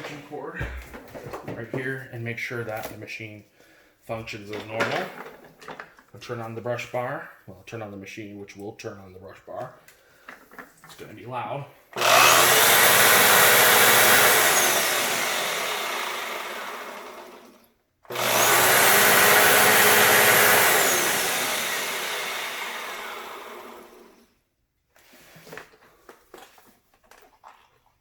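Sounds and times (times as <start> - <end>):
vacuum cleaner motor running: 12.0 - 17.5, 18.1 - 24.2.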